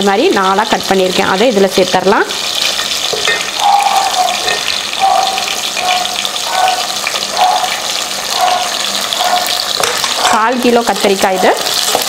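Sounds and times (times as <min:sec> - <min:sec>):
vegetables sizzling in oil: 0:00.0 - 0:12.0
spatula stirring in pot: 0:02.6 - 0:12.0.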